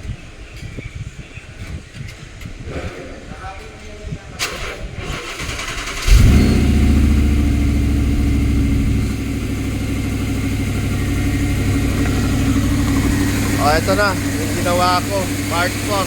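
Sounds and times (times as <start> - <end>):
car engine starting and idling: 4.4 - 16.0.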